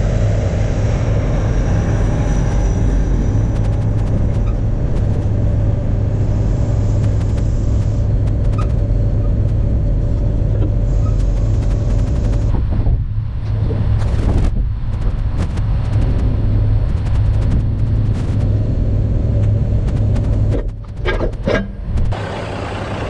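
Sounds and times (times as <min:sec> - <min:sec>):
deep diesel truck engine: 0:18.5 - 0:23.0.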